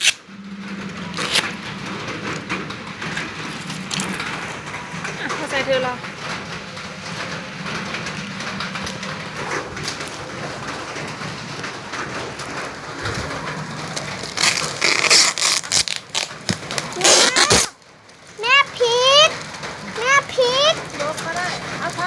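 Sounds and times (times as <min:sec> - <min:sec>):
plastic packaging crinkling: 0:01.0 - 0:04.6, 0:06.4 - 0:17.9.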